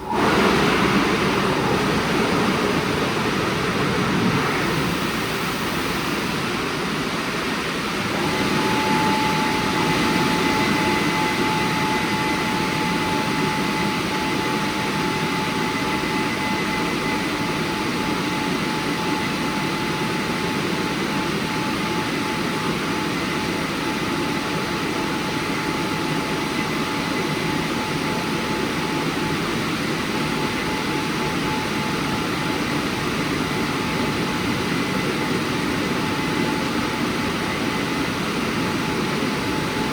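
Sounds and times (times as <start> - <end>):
car wash rushing noise: 0.0 - 13.0
thin whine: 0.0 - 18.9.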